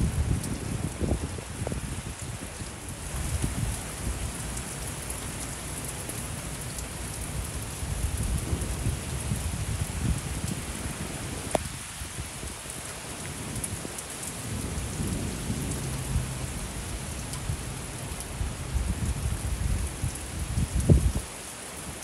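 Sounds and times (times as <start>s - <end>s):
heavy rain pouring: 0.0s - 22.0s
thunder rumbling: 7.6s - 11.8s, 14.4s - 21.2s.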